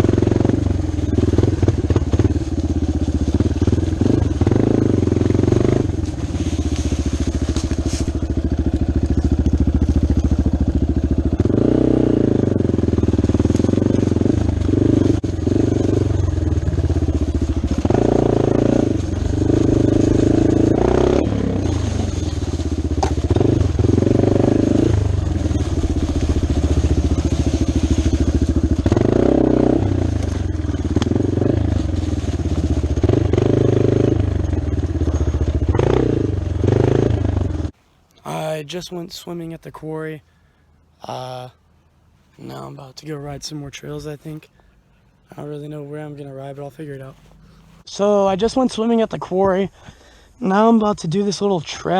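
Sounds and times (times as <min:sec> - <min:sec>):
dirt bike engine revving: 0:00.0 - 0:38.4.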